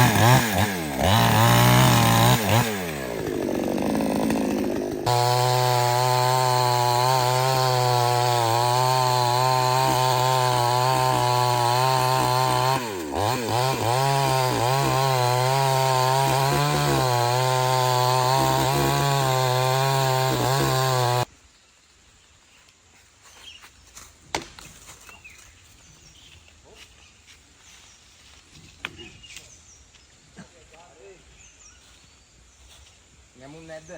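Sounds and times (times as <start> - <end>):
chainsaw cutting wood: 0.0 - 21.3.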